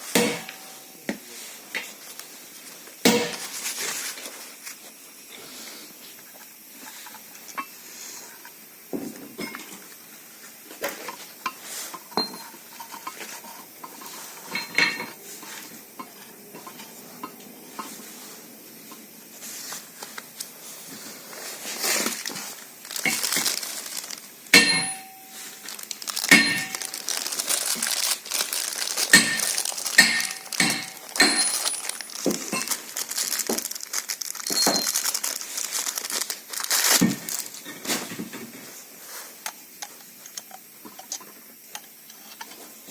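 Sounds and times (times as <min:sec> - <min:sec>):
metal tools clinking: 0:14.5 - 0:15.2, 0:24.5 - 0:32.9, 0:34.4 - 0:35.1.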